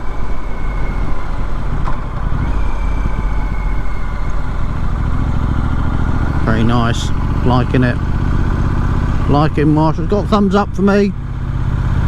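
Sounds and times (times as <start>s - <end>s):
rushing wind noise: 0.0s - 9.4s
motorcycle engine running: 0.0s - 12.0s.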